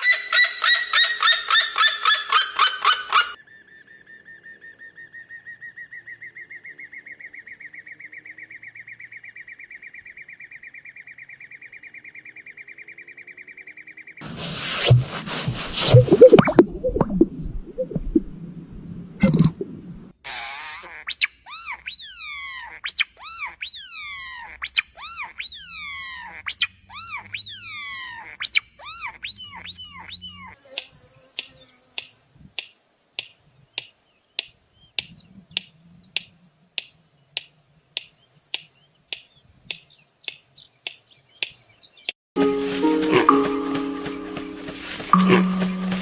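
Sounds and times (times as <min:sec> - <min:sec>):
birds chirping: 0:21.5 - 0:42.2
high-pitched buzz with ticks: 0:30.6 - 0:41.6.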